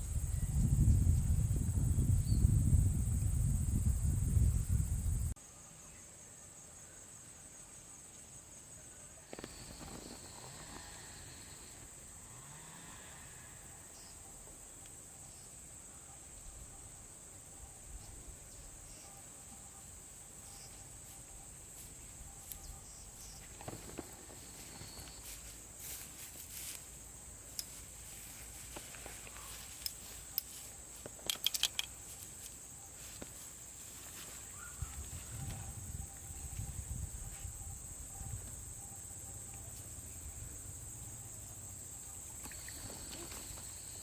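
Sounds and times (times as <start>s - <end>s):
insects chirring: 0.0s - 44.0s
faint clicks: 28.8s - 32.6s.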